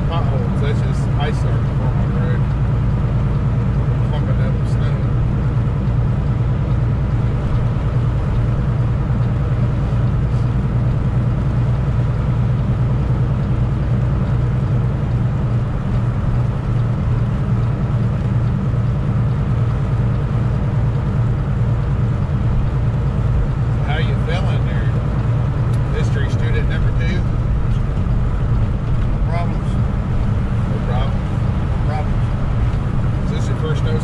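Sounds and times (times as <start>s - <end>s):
road noise: 0.0s - 34.0s
truck diesel engine droning: 0.0s - 34.0s.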